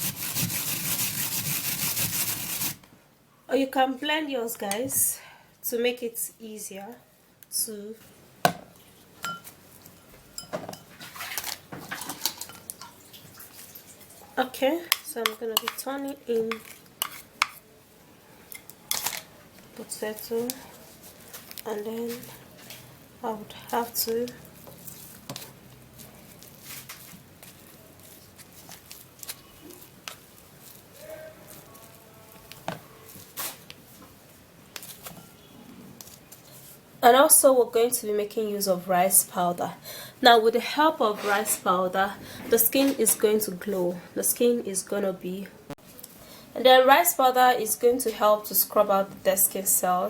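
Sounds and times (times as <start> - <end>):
utensils clicking and tapping: 14.9 - 17.6.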